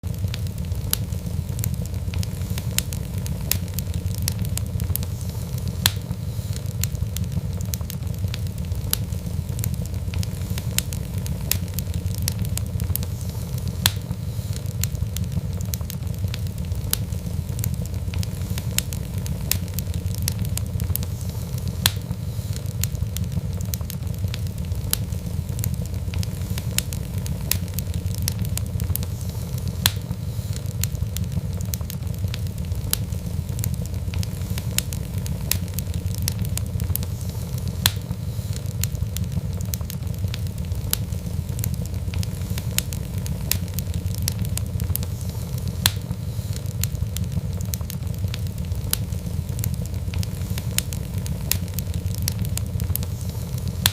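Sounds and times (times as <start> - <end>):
wood fire crackling: 0.0 - 53.9.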